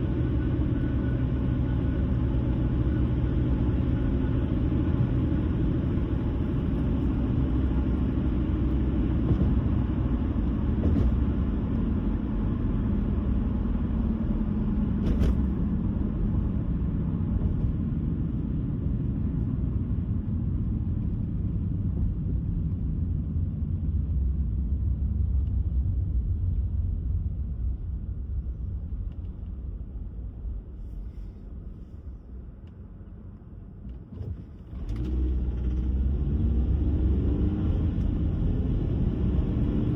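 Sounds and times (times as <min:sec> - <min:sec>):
car engine: 0:00.0 - 0:39.9
tyre and road noise: 0:02.5 - 0:22.3.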